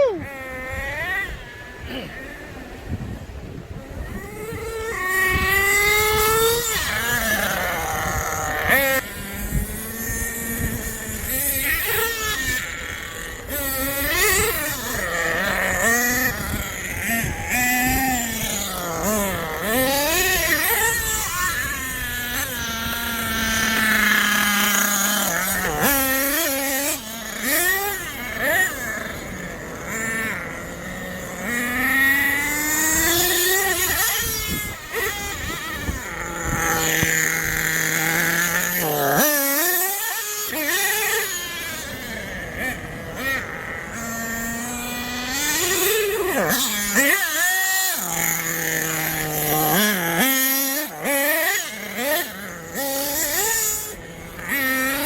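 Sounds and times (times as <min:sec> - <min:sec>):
small nitro engine revving: 0:00.0 - 0:55.0.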